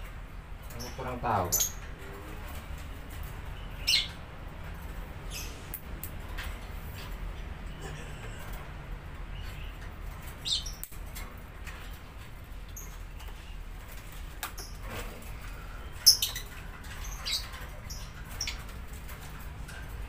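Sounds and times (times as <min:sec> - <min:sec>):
small bird squeaky chirps: 0:03.6 - 0:04.2, 0:10.4 - 0:10.9, 0:15.8 - 0:18.6.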